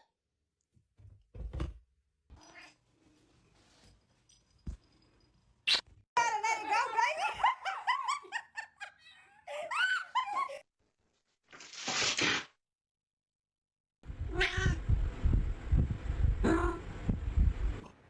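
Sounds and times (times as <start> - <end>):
low rumble: 14.0 - 17.9.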